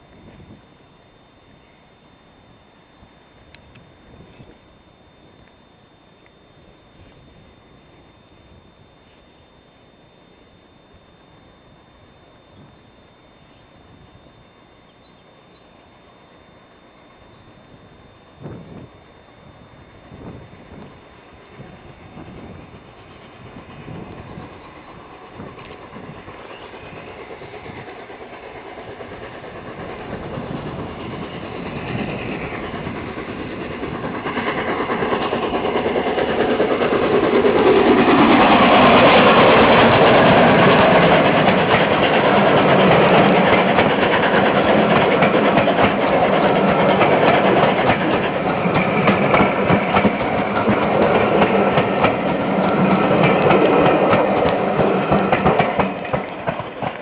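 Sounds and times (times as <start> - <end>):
steam locomotive passing: 0.0 - 57.0
train wheel clatter: 20.2 - 57.0.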